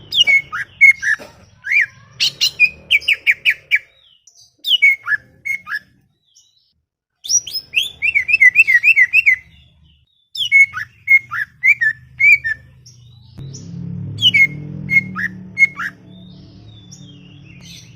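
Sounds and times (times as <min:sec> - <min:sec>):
bird singing whistled notes: 0:02.2 - 0:17.9
low hum: 0:11.9 - 0:17.9.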